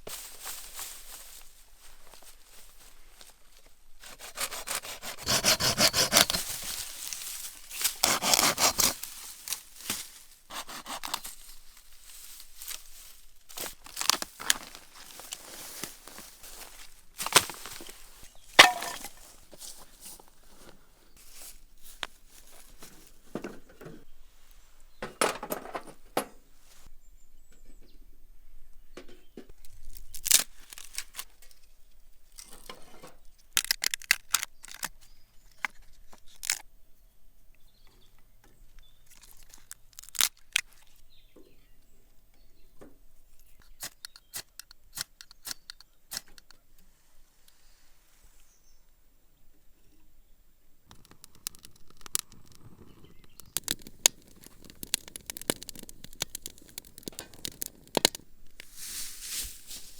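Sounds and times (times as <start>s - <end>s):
dry twigs snapping: 5.9s - 10.3s, 10.9s - 19.9s, 29.6s - 31.7s, 33.4s - 36.7s, 38.8s - 41.1s, 50.9s - 59.9s.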